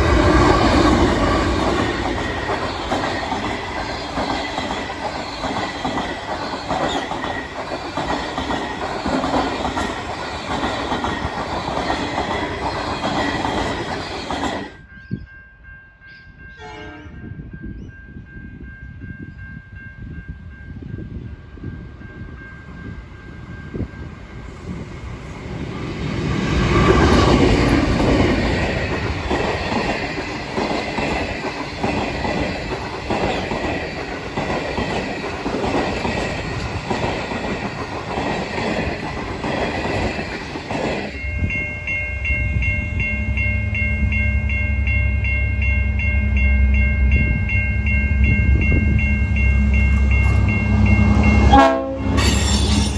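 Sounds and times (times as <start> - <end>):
wheels clicking over rail joints: 0.0 - 14.7, 26.6 - 41.3
diesel train passing: 0.0 - 15.0, 16.5 - 52.9.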